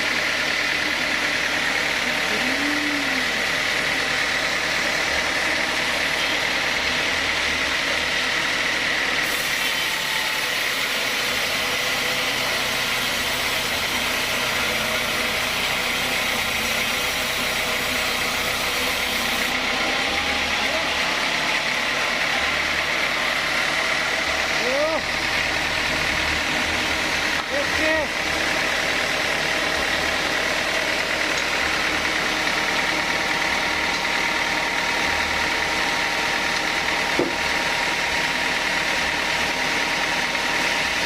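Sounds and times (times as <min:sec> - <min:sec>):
sawmill saw machinery running: 0:00.0 - 0:41.0.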